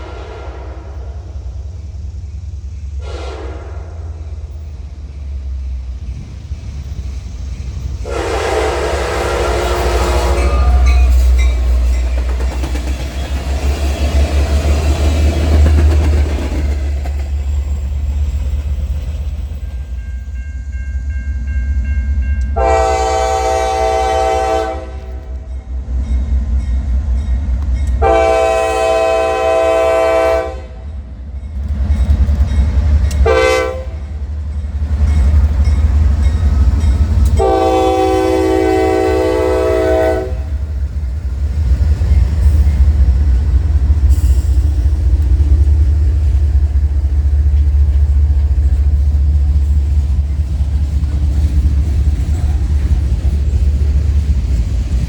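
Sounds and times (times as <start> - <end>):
train air horn blasts: 0.0 - 1.4, 3.0 - 4.4, 8.0 - 11.8, 22.5 - 25.5, 28.0 - 30.9, 33.2 - 34.1, 37.3 - 40.7
train rumbling: 0.0 - 55.0.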